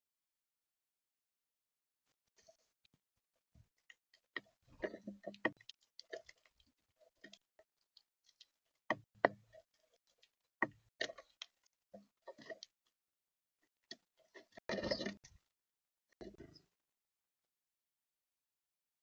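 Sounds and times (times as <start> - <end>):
birds pecking seed: 14.3 - 15.4.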